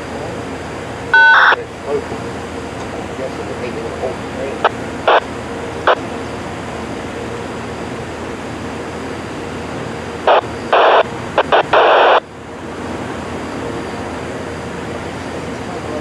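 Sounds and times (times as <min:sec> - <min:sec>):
radio scanner static hiss: 0:01.1 - 0:02.2, 0:03.2 - 0:06.2, 0:10.2 - 0:12.3
short loud static bursts: 0:10.2 - 0:12.2.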